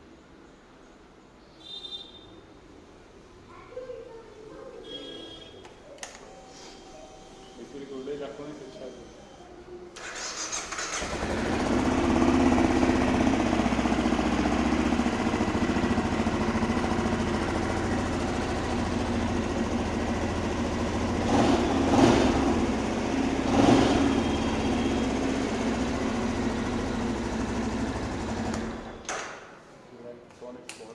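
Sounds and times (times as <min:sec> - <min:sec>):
motorcycle engine idling: 0:10.1 - 0:29.0.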